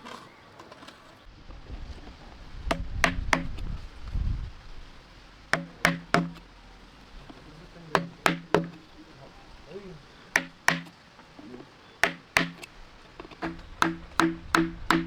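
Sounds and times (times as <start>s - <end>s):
sharp ringing knocks: 5.6s - 6.4s, 10.4s - 10.9s, 12.0s - 12.7s.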